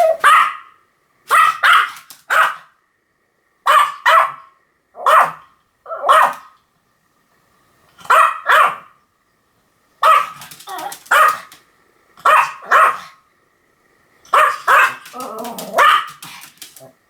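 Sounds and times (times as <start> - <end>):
small dog barking: 0.0 - 2.7, 3.7 - 6.6, 8.0 - 9.0, 10.0 - 11.6, 12.2 - 13.2, 14.3 - 16.9.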